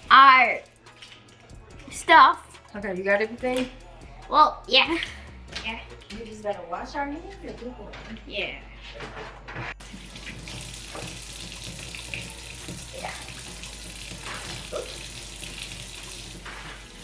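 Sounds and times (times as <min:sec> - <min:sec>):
hands washing under tap: 0:09.8 - 0:17.0
tap water running: 0:09.8 - 0:17.0.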